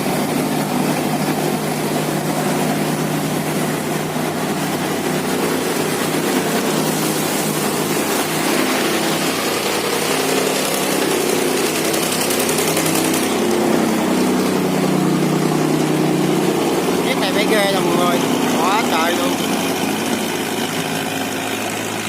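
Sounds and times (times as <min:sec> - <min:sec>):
boat engines running: 0:00.0 - 0:22.0.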